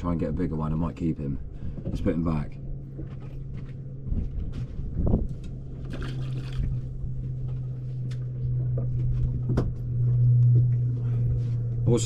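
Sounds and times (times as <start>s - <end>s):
steady low hum: 0.0s - 12.0s
knocks and clicks on boat: 3.0s - 10.7s
fish splashing into water: 5.8s - 7.0s.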